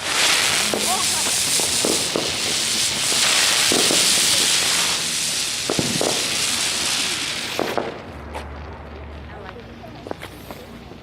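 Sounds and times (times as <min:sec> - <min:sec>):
sharp firework pops: 0:00.0 - 0:08.6
fireworks hissing sparks: 0:00.0 - 0:11.0.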